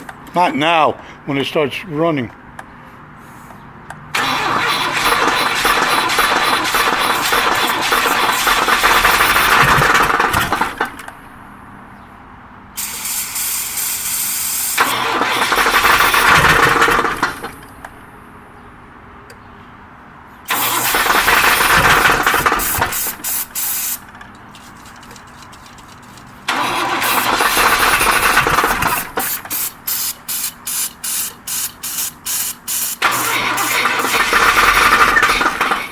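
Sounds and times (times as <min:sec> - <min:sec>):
car engine cranking: 0:03.8 - 0:11.5, 0:12.8 - 0:18.1, 0:20.5 - 0:30.7, 0:32.2 - 0:35.9.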